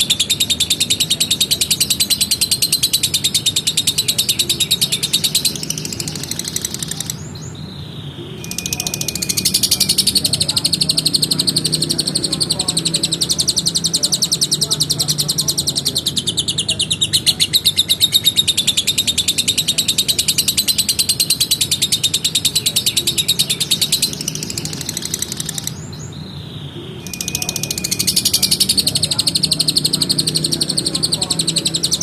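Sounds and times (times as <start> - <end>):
lovebird shrill chattering song: 0.0 - 32.0.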